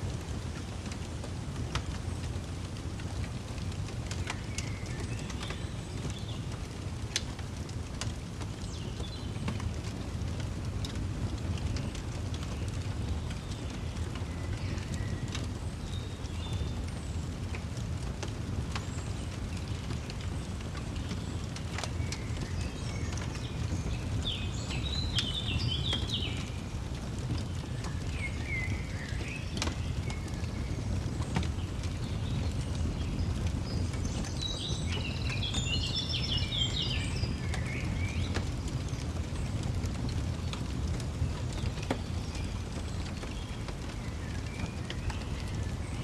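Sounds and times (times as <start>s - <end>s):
fireplace crackling: 0.0s - 46.0s
songbird chirping: 22.0s - 26.6s, 27.2s - 38.9s.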